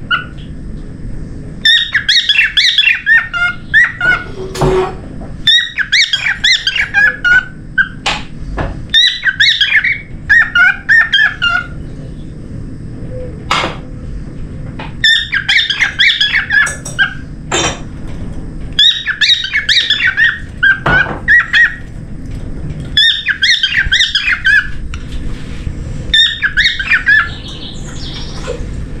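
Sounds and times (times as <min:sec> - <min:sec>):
cockatiel chattering and warbling: 0:01.6 - 0:04.4, 0:08.9 - 0:11.8, 0:15.0 - 0:17.2, 0:18.8 - 0:21.8, 0:23.0 - 0:24.7, 0:26.1 - 0:28.6.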